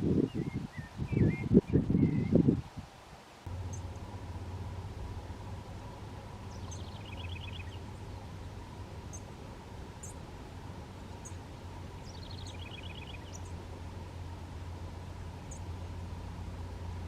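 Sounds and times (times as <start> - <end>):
steady low hum: 3.4 - 17.0
bird trilling: 6.4 - 7.8, 12.0 - 13.6.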